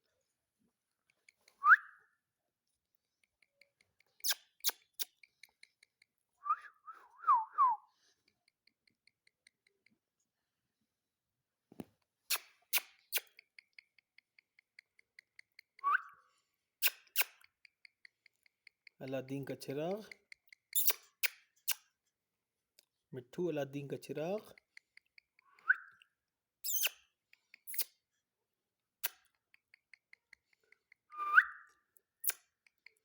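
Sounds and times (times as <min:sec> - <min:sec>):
whistled notes sliding in pitch: 0:31.2 - 0:31.6.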